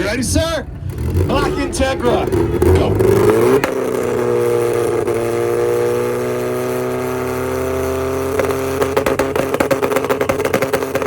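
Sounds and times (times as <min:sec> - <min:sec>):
exhaust crackles and pops: 0:00.0 - 0:11.0
car engine on launch limiter: 0:00.1 - 0:11.0.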